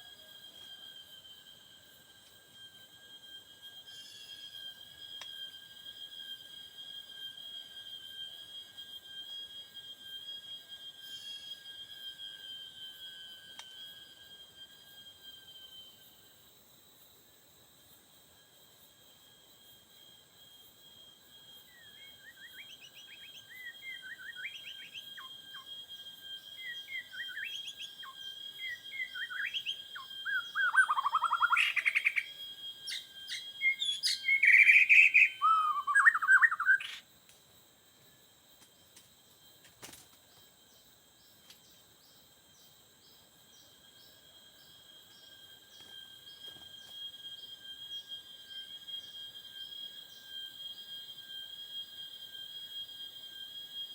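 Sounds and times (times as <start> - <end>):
bird singing whistled phrases: 21.7 - 25.7, 26.4 - 37.0.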